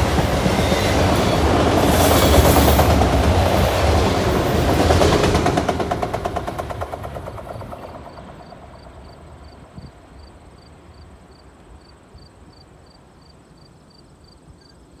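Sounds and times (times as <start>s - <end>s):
train rumbling: 0.0s - 11.9s
insect chirping: 8.1s - 15.0s.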